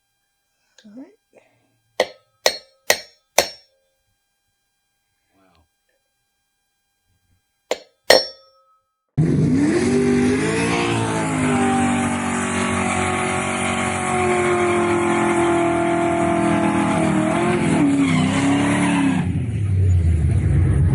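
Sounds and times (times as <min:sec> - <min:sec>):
car engine noise: 0:09.2 - 0:20.9
car tires squealing in a skid: 0:09.6 - 0:20.0.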